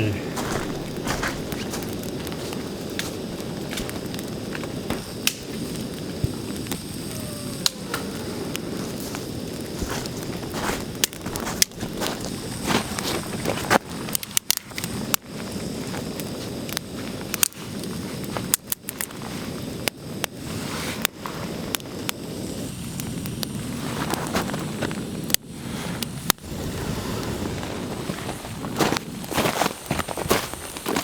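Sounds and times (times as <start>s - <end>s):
rain hiss: 0.0s - 31.0s
wood crackling and snapping: 0.3s - 20.3s.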